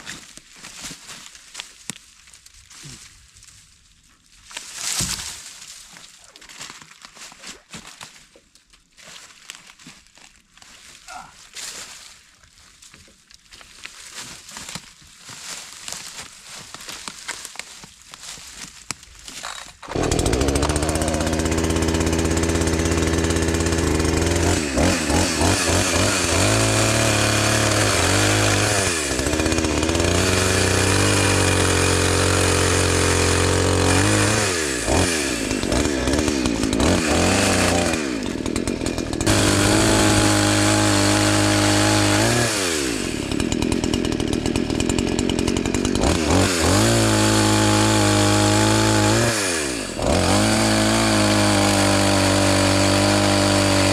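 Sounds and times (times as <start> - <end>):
chainsaw cutting wood: 19.2 - 53.9.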